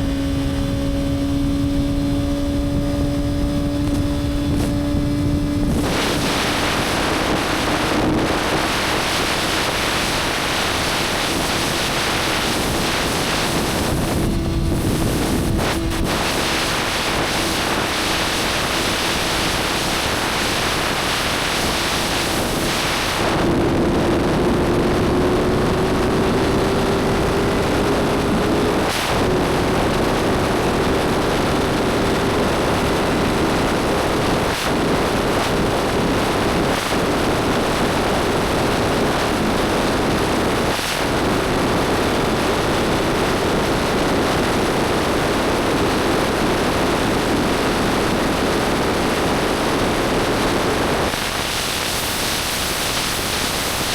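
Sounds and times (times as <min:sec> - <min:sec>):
motorcycle engine running: 0:00.0 - 0:34.6
wind noise on microphone: 0:00.0 - 0:53.9.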